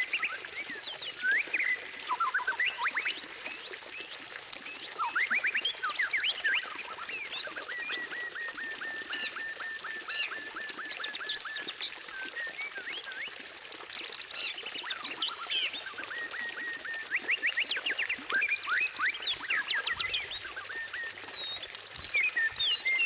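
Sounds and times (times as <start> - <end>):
bird whistles and chirps: 0.0 - 23.0
bird song with repeated notes: 18.4 - 23.0.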